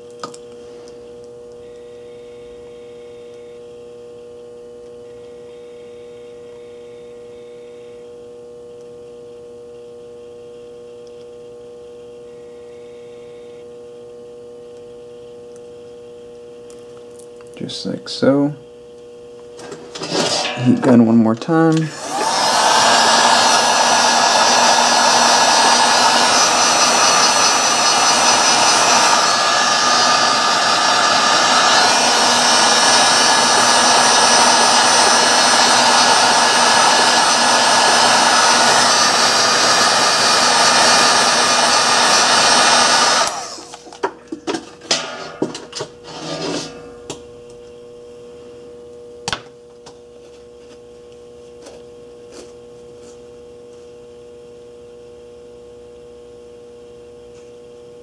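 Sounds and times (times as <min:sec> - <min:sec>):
heat gun blowing: 0:21.7 - 0:43.9.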